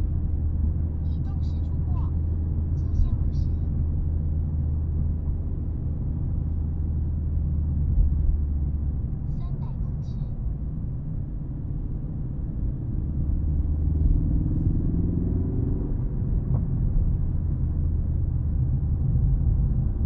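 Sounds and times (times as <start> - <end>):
car engine running: 0.0 - 20.0
road noise: 0.0 - 20.0.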